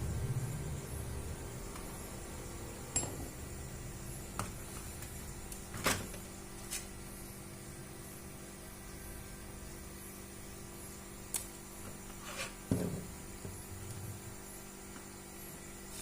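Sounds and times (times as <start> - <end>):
low hum: 0.0 - 5.5.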